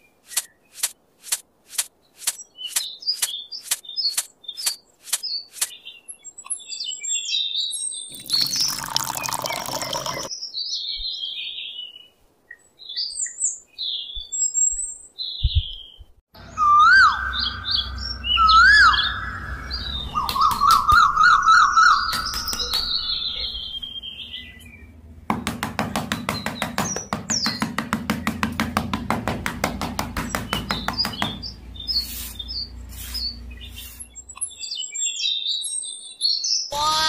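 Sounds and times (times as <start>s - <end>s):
birds chirping: 2.0s - 28.5s, 29.6s - 37.0s
water pouring into plastic trough: 8.1s - 10.3s
whistled bird calls: 12.9s - 24.6s.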